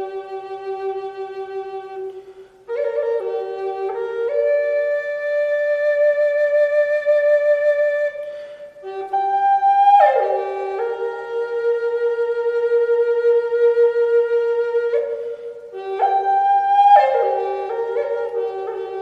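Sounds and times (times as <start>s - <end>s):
slow solo flute melody: 0.0s - 19.0s.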